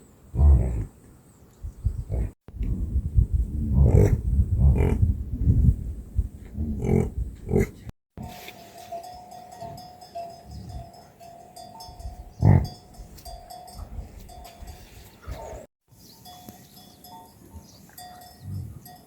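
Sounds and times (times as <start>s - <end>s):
neck bell ringing: 8.2s - 15.1s, 16.0s - 19.0s.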